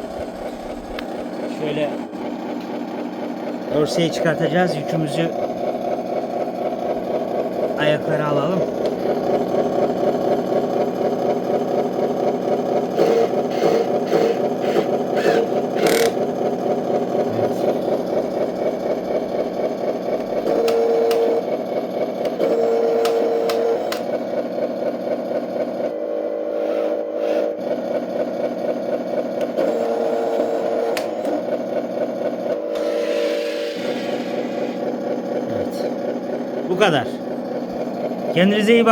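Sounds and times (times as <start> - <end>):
truck engine sound from speaker: 0.0 - 2.3, 3.4 - 11.7, 12.7 - 16.2, 16.8 - 24.3, 32.2 - 38.9
small clicks and whirring: 0.2 - 1.5, 2.2 - 3.7, 8.5 - 10.9, 13.0 - 16.3, 18.0 - 26.0, 26.6 - 35.4.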